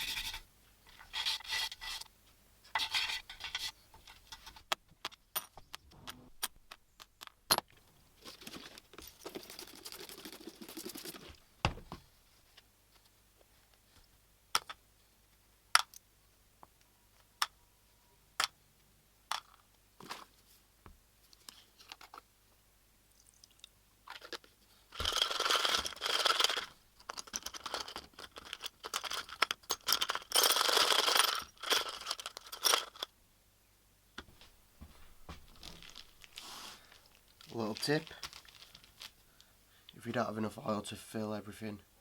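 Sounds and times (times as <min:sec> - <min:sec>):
plastic bag crinkling: 0:24.9 - 0:33.0, 0:35.5 - 0:39.2.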